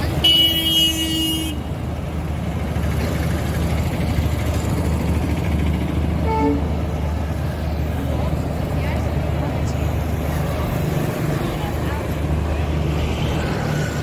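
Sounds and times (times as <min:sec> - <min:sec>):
train rumbling over bridge: 0:00.0 - 0:14.0
train horn: 0:06.2 - 0:06.7.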